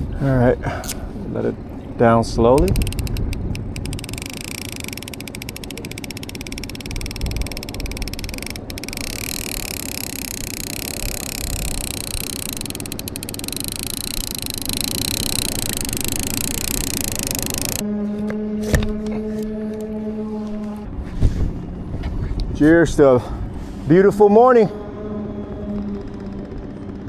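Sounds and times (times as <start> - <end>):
boat motor running: 1.6 - 17.8
fishing reel clicker ratcheting: 2.4 - 17.8.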